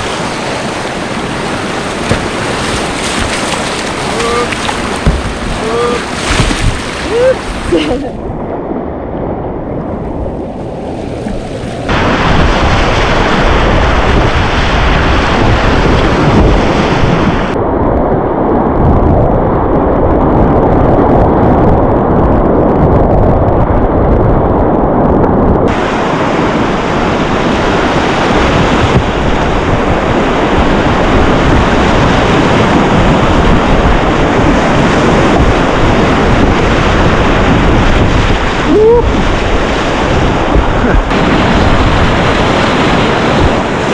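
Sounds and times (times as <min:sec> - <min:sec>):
whitewater rapids rushing: 0:00.0 - 0:08.2.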